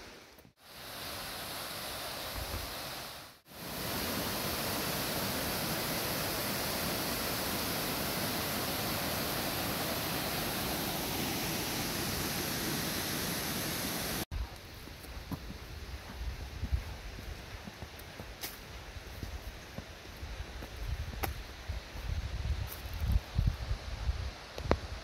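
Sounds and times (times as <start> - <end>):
waterfall cascading over rock: 0.6 - 14.3.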